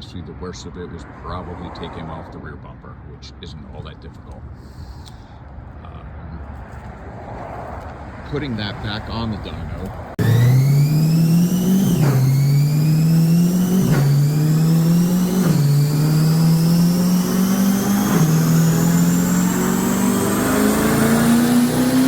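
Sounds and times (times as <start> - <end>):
car engine revving: 7.8 - 22.0
high supercharger whine: 8.3 - 22.0.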